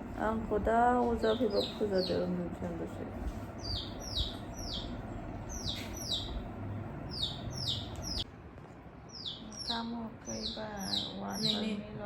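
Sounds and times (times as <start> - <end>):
small bird chirping: 1.2 - 2.4, 3.4 - 8.3, 9.1 - 11.8.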